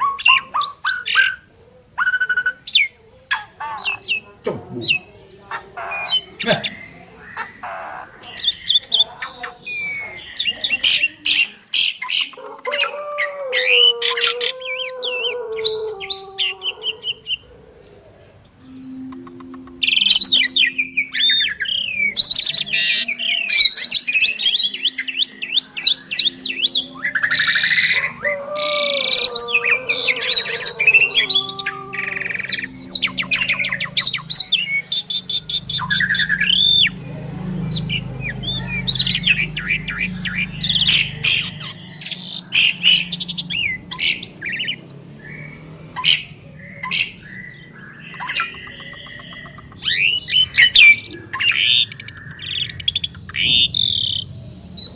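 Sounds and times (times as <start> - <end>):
starlings singing: 0.0 - 54.9.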